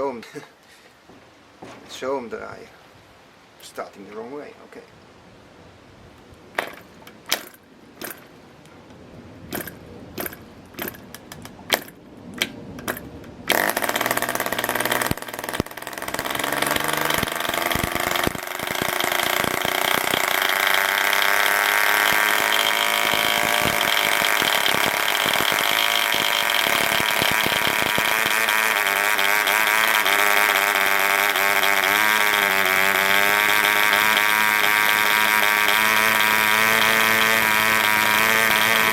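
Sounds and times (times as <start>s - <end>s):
model engine firing pops: 9.5s - 38.9s
model engine high-pitched buzz: 12.9s - 38.9s.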